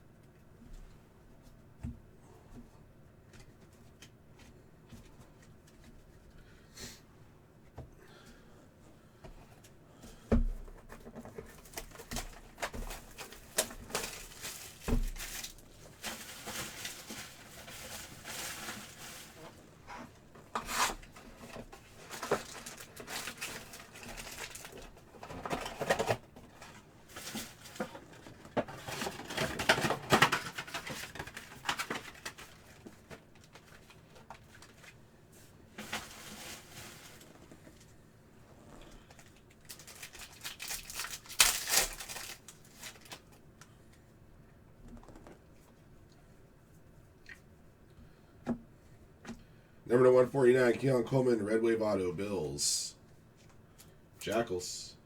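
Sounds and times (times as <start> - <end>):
foil wrappers crinkling and tearing: 11.5 - 19.6, 20.8 - 35.0, 39.0 - 43.4.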